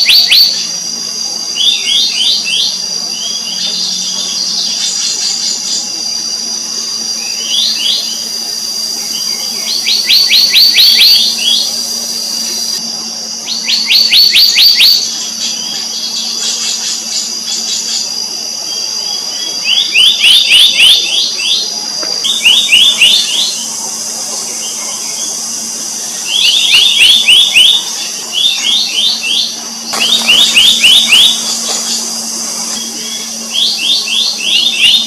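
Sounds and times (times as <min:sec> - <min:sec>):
high-pitched insect drone: 0:00.0 - 0:35.0
bird whistling downward notes: 0:22.3 - 0:35.0.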